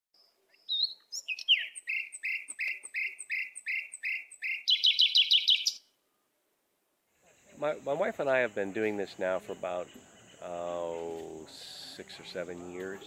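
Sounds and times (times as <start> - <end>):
songbird whistling and trilling: 0.2 - 5.9.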